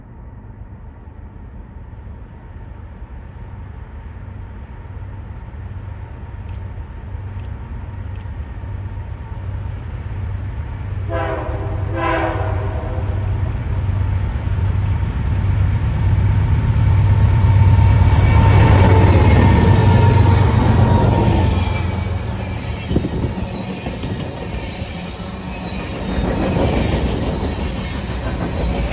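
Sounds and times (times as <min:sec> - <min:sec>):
diesel locomotive engine drone: 0:00.0 - 0:28.9
locomotive horn blasts: 0:11.1 - 0:13.3.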